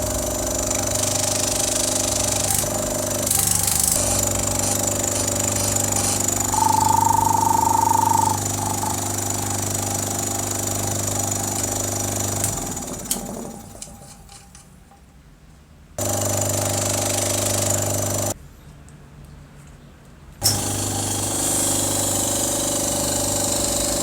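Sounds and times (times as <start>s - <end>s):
air compressor humming: 0.0s - 14.1s, 16.0s - 18.4s, 20.4s - 24.0s
high whistle: 6.4s - 9.1s.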